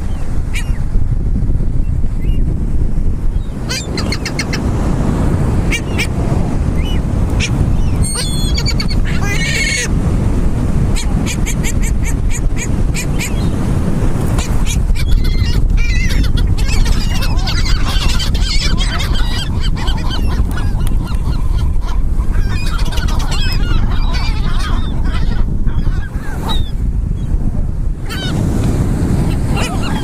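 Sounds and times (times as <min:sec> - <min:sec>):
gulls squawking: 0:03.6 - 0:04.7, 0:05.6 - 0:06.1, 0:06.8 - 0:09.9, 0:14.4 - 0:26.7, 0:29.2 - 0:30.0.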